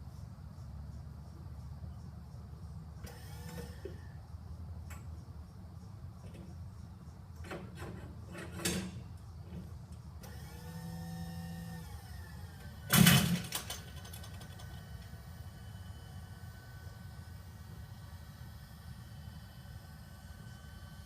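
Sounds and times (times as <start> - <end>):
small electric motor whining: 3.0 - 4.2, 10.2 - 13.0.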